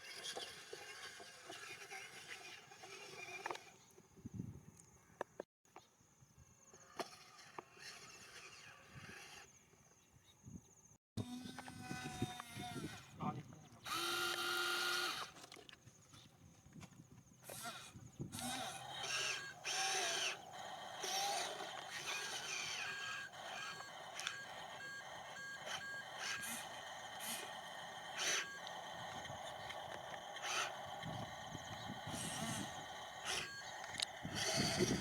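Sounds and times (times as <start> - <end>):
small electric motors whirring: 0.0 - 4.0, 6.7 - 9.8, 11.2 - 15.8, 17.4 - 35.0
steady whine: 18.4 - 35.0.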